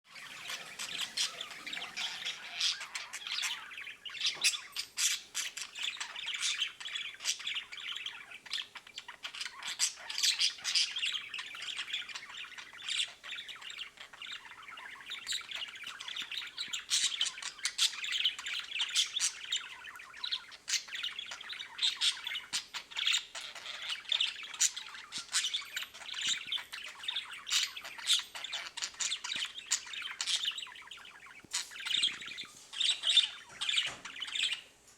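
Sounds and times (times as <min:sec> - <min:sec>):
budgerigar chattering and squawking: 0:00.1 - 0:34.7.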